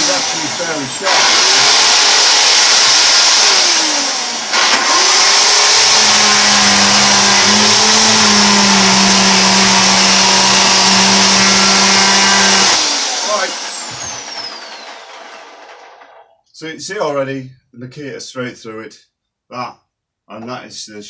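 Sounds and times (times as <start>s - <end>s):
electric chainsaw cutting timber: 0.0s - 16.2s.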